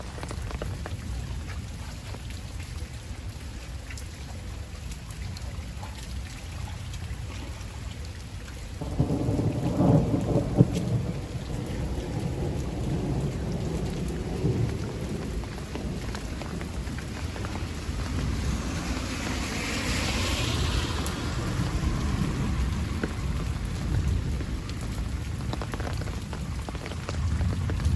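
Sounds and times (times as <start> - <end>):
heavy rain falling: 0.0 - 27.9
thunder rumbling: 8.8 - 27.9.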